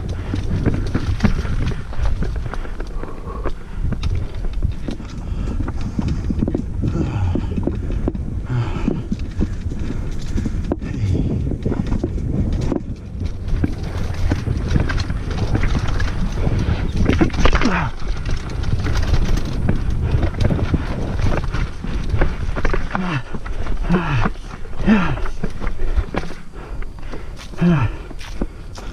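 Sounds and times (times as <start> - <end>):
bike rattling over rough trail: 0.0 - 28.9
wind buffeting microphone: 0.0 - 28.9.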